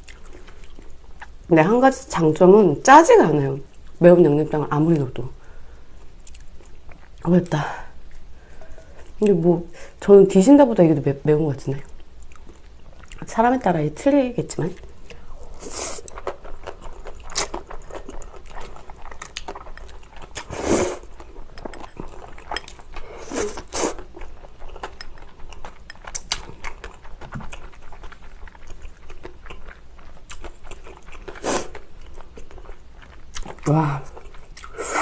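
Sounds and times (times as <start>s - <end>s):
wet chewing of noodles: 0.0s - 1.4s, 11.9s - 13.3s, 14.7s - 35.0s.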